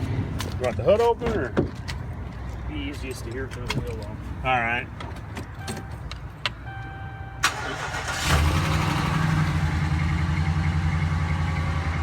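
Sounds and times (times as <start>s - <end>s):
pickup engine starting and idling: 7.4s - 12.0s.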